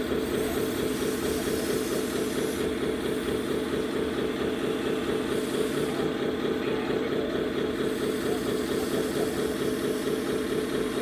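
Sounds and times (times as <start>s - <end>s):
simulated diesel truck idling: 0.0s - 11.0s.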